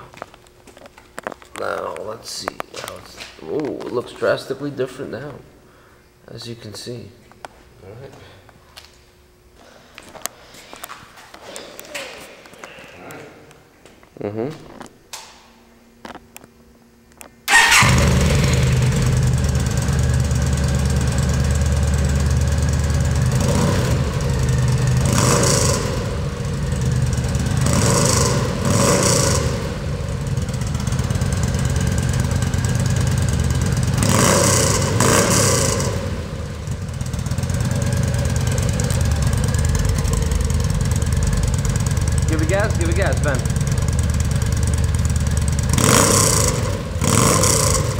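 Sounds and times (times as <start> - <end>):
motorcycle engine revving: 17.5 - 47.9
motorcycle engine starting and idling: 17.5 - 47.9.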